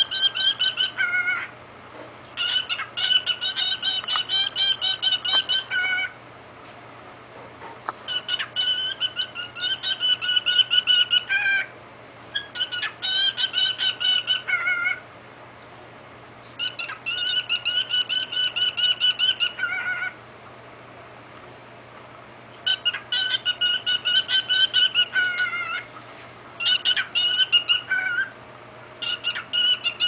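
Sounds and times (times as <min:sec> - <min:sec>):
cockatiel chattering: 0:00.0 - 0:01.5, 0:02.4 - 0:06.2, 0:08.1 - 0:11.7, 0:12.3 - 0:15.0, 0:16.6 - 0:20.2, 0:22.6 - 0:25.9, 0:26.6 - 0:28.3, 0:29.0 - 0:30.0.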